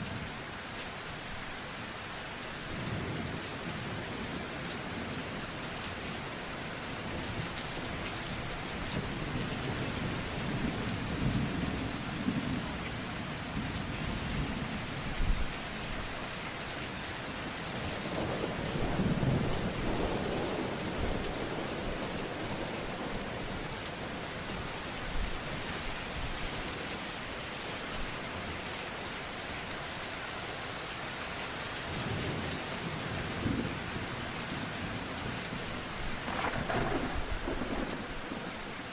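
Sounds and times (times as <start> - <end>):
steady rain pouring: 0.0 - 38.9
sharp thunder cracks: 36.3 - 38.5
thunder rolling: 36.3 - 38.5.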